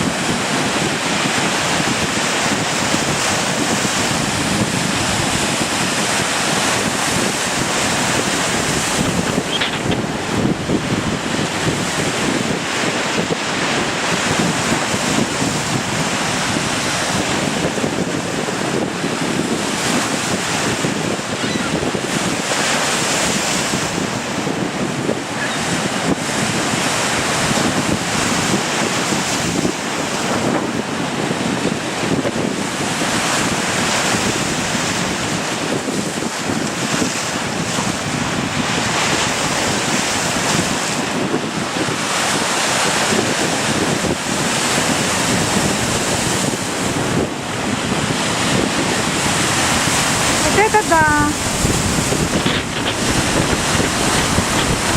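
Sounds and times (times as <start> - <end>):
waves breaking on shore: 0.0 - 54.9
wind buffeting microphone: 0.0 - 54.9.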